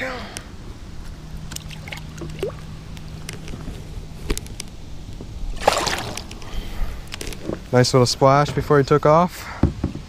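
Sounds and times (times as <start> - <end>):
water drips: 1.4 - 3.3
water splashing: 1.4 - 3.4, 5.5 - 6.8.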